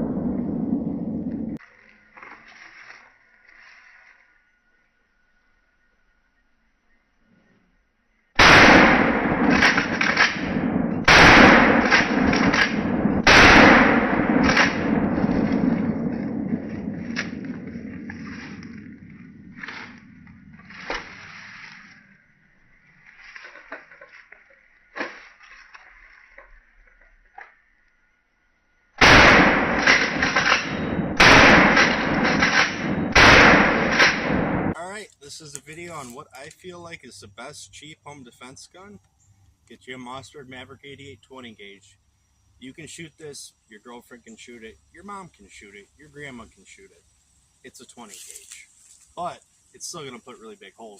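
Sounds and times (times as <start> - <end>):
shotgun shots echoing: 8.4 - 20.0, 29.0 - 34.8.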